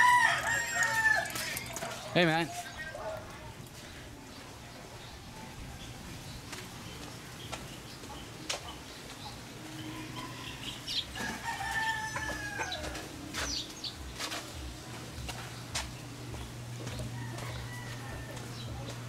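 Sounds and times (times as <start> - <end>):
rooster crowing: 0.0 - 1.7, 9.7 - 13.1, 17.1 - 18.7.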